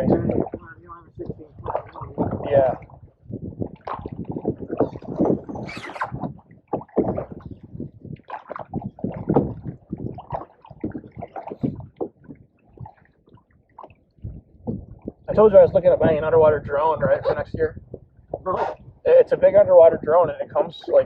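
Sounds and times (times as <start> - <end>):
paddle splashing in water: 0.0 - 15.4
water moving along hull: 0.0 - 21.0.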